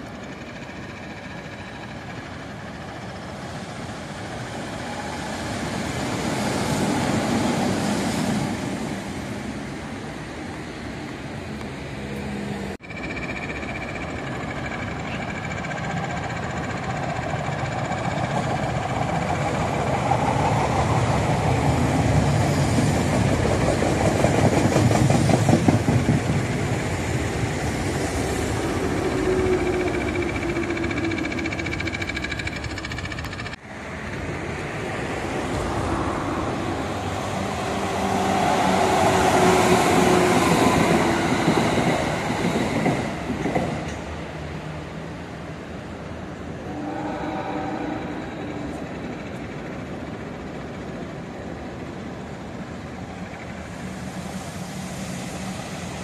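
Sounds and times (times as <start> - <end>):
train wheel clatter: 12.8 - 36.1, 36.8 - 44.2.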